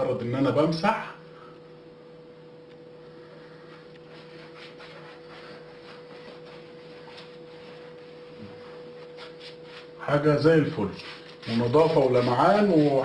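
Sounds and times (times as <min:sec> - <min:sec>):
steady hum: 0:00.0 - 0:13.0
cloth rubbing on tiles: 0:03.4 - 0:13.0.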